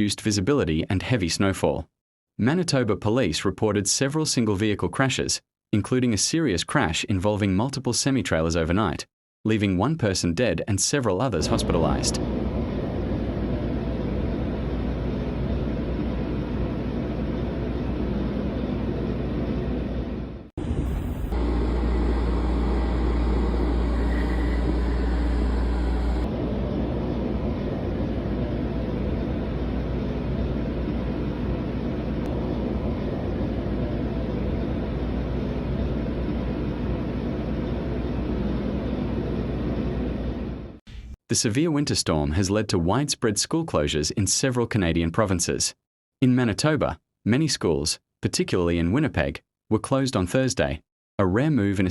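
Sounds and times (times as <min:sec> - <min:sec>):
low rumbling noise: 0:20.6 - 0:31.0.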